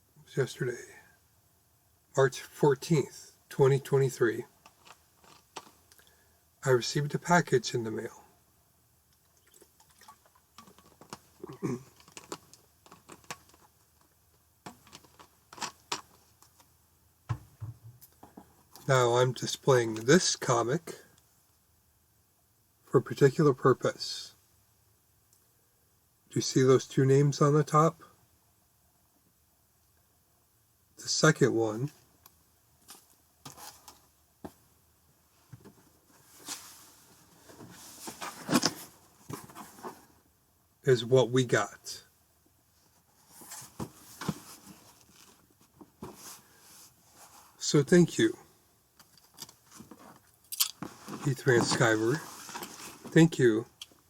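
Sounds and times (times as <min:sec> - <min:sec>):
package handling clicks and rustles: 0:04.6 - 0:06.1, 0:10.6 - 0:14.1, 0:14.7 - 0:16.6
comic book rustling: 0:35.6 - 0:40.1, 0:43.1 - 0:47.6, 0:49.6 - 0:50.2, 0:50.8 - 0:53.3.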